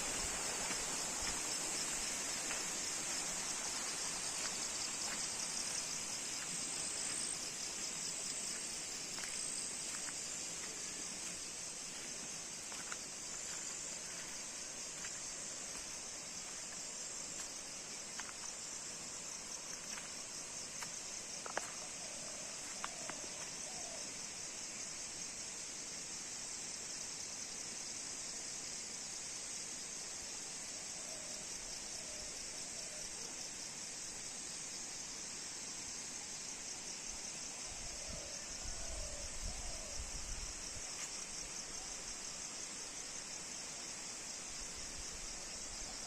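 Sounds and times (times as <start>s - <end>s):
insects buzzing: 0.0s - 26.0s
outdoor background noise: 0.0s - 46.0s.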